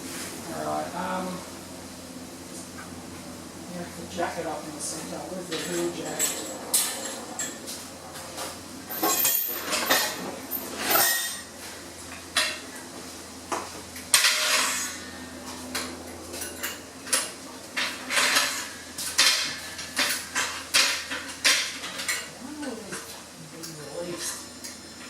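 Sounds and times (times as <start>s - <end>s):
metallic clanks of tools: 8.9s - 11.5s, 14.1s - 15.0s, 15.8s - 22.3s
scraping metal clank: 8.9s - 11.5s, 14.1s - 15.2s, 16.4s - 22.3s.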